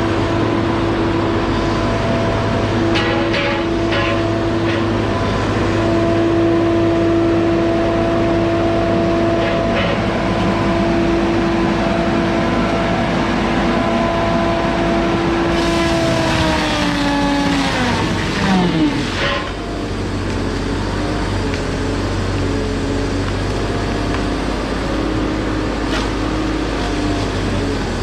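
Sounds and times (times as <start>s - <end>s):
chainsaw revving: 15.4s - 19.6s.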